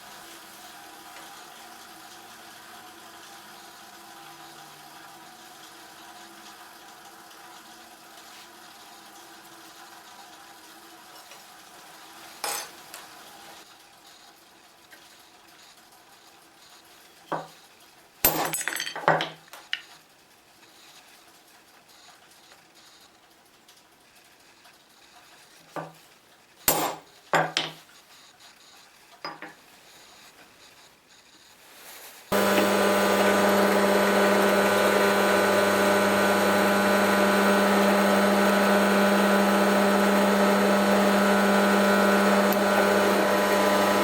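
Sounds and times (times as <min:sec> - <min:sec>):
metal pieces clinking: 0:18.3 - 0:19.8.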